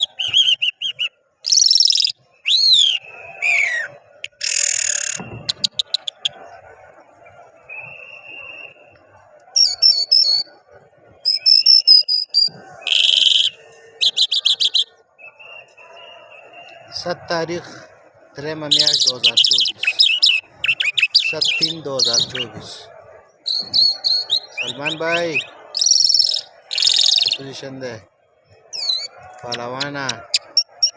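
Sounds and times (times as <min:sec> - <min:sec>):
lark singing: 0:00.0 - 0:06.4, 0:09.6 - 0:10.5, 0:11.3 - 0:14.9, 0:18.7 - 0:22.7, 0:23.5 - 0:27.7, 0:28.7 - 0:30.9.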